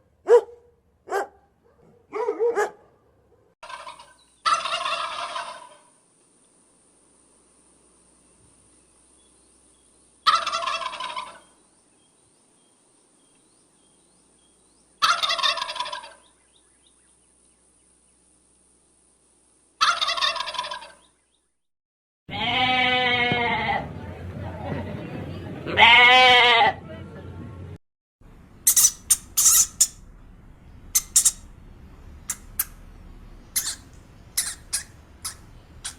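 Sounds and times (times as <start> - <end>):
turkey gobbling: 3.6 - 5.9, 10.2 - 11.5, 15.0 - 16.3, 19.8 - 21.0, 28.7 - 29.9, 31.0 - 31.4, 33.6 - 35.9
animal call: 33.6 - 35.9.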